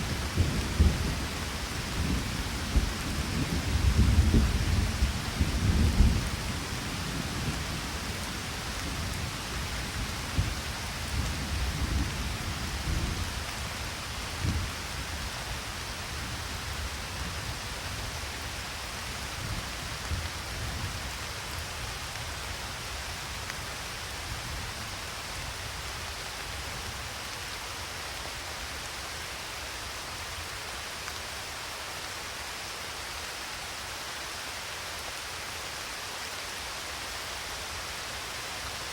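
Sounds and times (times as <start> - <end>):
rolling thunder: 0.0 - 7.9
steady rain: 0.0 - 38.9.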